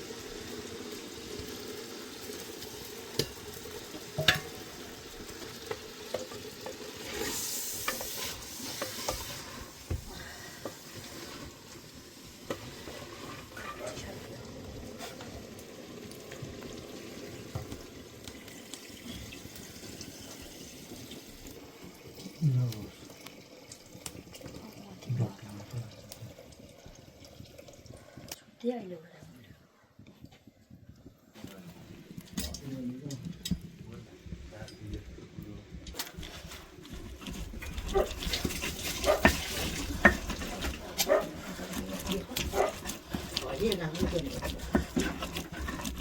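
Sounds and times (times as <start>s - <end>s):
food sizzling in a pot: 0.0s - 28.8s, 31.4s - 46.0s
utensil stirring and clicking: 3.1s - 14.4s, 35.9s - 46.0s.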